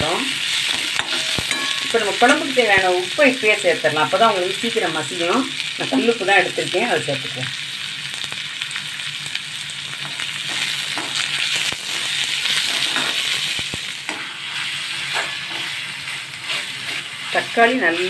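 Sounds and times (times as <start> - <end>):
onion and tomato sizzling: 0.0 - 18.0
spatula scraping metal pan: 14.0 - 18.0.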